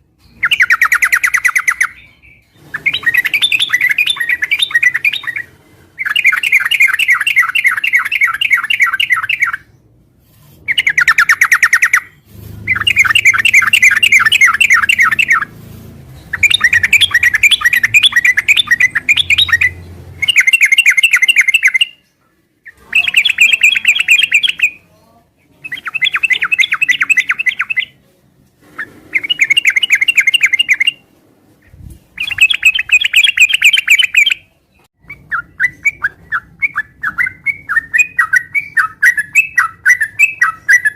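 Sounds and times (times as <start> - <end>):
bird singing chattering notes: 0.3 - 9.7, 10.7 - 15.5, 16.2 - 22.1, 22.7 - 24.8, 32.2 - 34.5.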